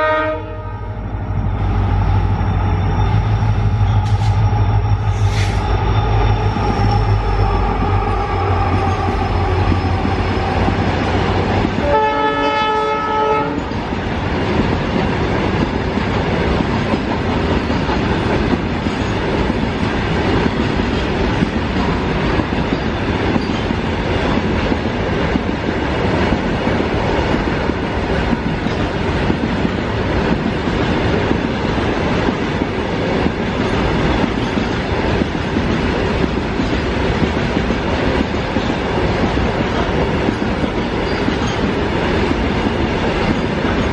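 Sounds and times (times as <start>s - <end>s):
train horn: 0.0s - 1.2s, 11.7s - 13.7s
freight train rumbling on rails: 0.0s - 43.9s.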